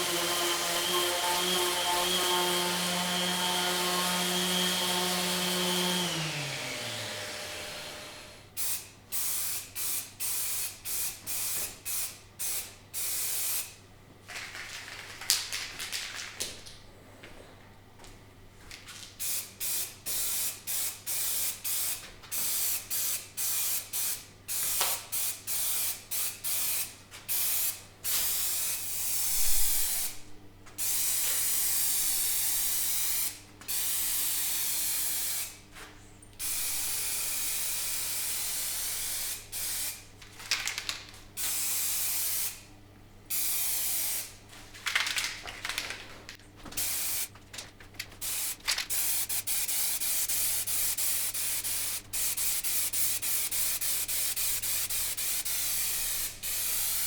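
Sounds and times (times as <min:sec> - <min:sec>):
paint spray hissing: 0:19.2 - 0:30.2, 0:30.8 - 0:35.6, 0:36.4 - 0:40.0, 0:41.4 - 0:42.6, 0:43.3 - 0:44.3, 0:46.8 - 0:47.3, 0:48.2 - 0:57.0.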